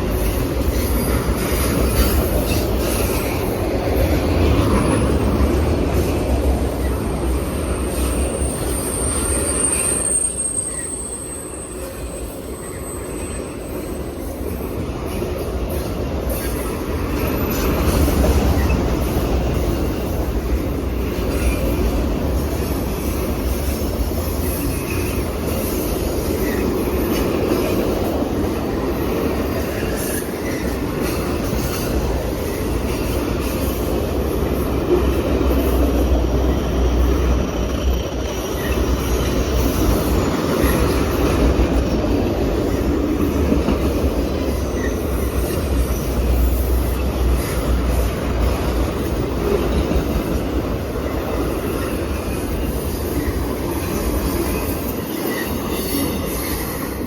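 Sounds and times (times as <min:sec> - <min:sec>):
rumble of train wheels on rails: 0:00.0 - 0:57.0
faint wheel squeals: 0:08.0 - 0:14.0.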